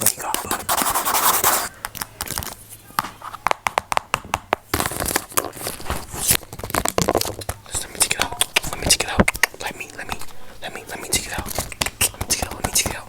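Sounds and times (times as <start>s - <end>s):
crackly rustling: 4.7s - 13.0s
sharp clicks and taps: 6.7s - 10.3s, 11.2s - 13.0s.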